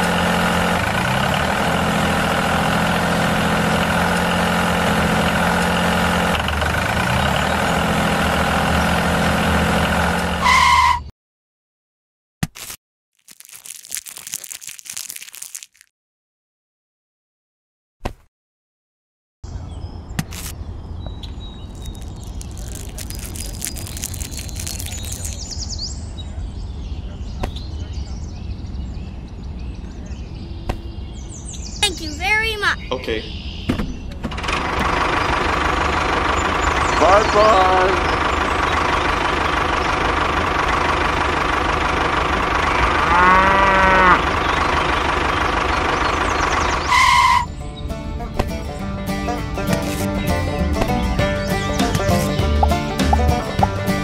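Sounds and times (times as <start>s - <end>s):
tractor engine idling: 0.0s - 10.4s, 34.3s - 43.2s, 44.2s - 47.2s
birds chirping and whistling: 19.5s - 34.2s, 45.7s - 48.0s
cow mooing: 42.9s - 44.3s.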